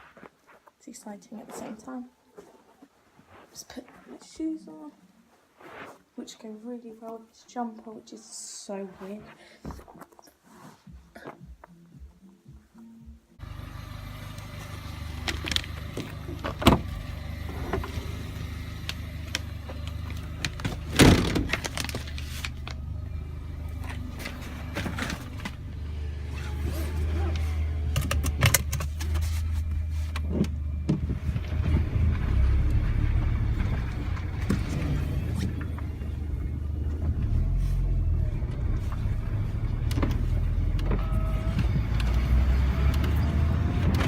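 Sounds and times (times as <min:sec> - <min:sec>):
car engine humming: 0:13.4 - 0:44.0.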